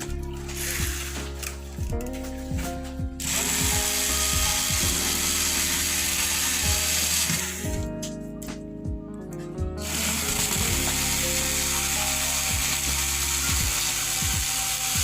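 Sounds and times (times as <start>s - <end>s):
background music with held notes: 0.0s - 15.0s
power screwdriver running: 0.5s - 1.6s, 3.2s - 7.8s, 9.8s - 15.0s.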